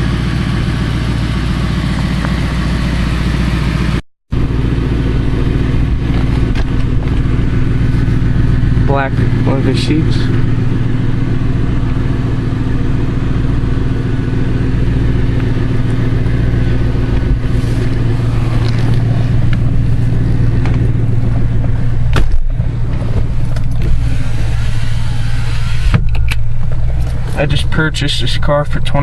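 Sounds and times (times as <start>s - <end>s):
car engine idling: 0.0s - 29.0s
thump: 22.1s - 24.0s.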